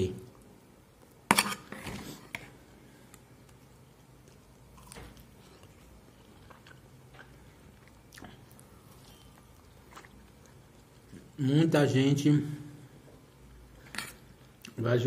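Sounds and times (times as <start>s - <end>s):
chewing crispy chicken: 3.0s - 11.4s.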